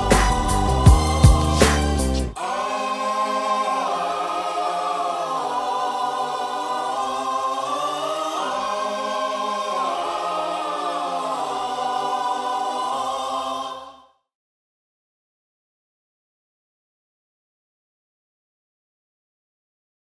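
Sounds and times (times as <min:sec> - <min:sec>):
choir-like voices holding chords: 0:00.0 - 0:14.2.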